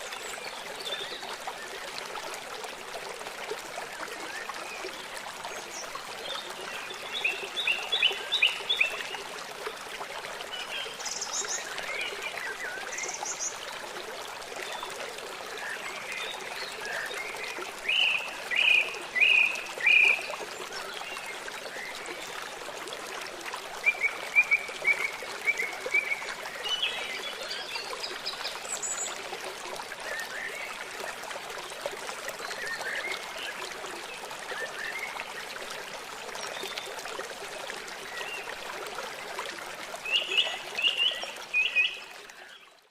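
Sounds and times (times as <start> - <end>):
stream burbling: 0.0 - 42.9
forest birds singing: 15.6 - 22.0.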